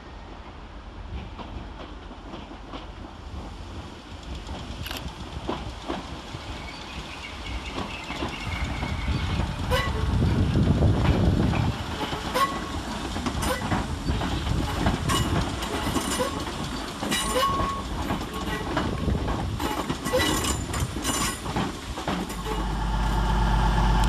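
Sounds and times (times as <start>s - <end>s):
train wheels clicking over rail joints: 1.1s - 24.0s
wheel squeals: 13.4s - 18.7s, 19.6s - 21.4s.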